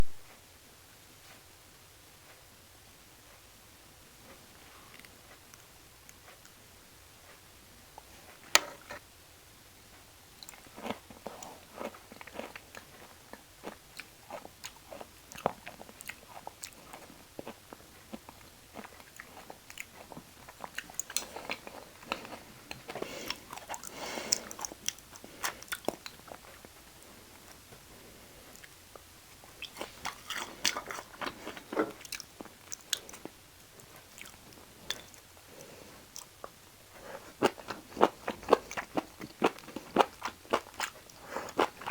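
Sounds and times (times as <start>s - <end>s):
close chewing and biting: 10.4s - 27.5s, 28.5s - 41.9s.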